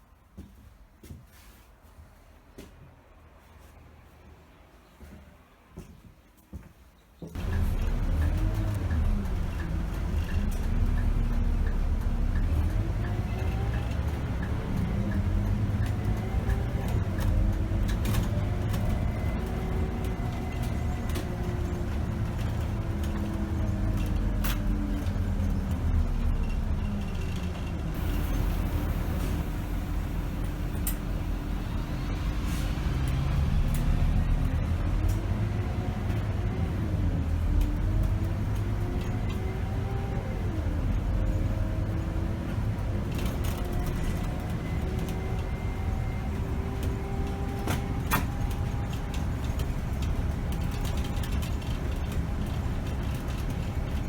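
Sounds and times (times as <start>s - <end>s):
bus diesel engine: 7.3s - 54.0s
air brake hiss: 32.3s - 33.0s.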